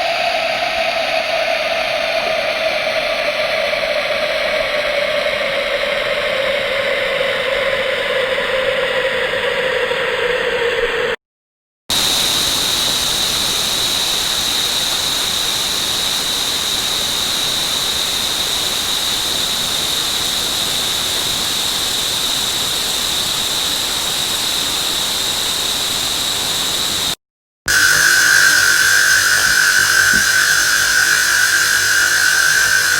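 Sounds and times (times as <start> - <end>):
running water rushing hiss: 11.9 - 32.9
high whistle: 27.7 - 32.9.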